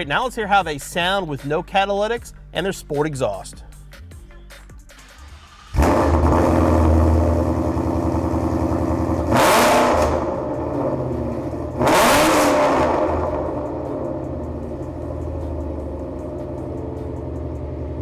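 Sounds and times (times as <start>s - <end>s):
car engine starting and idling: 4.6s - 18.0s
car engine revving: 5.0s - 18.0s.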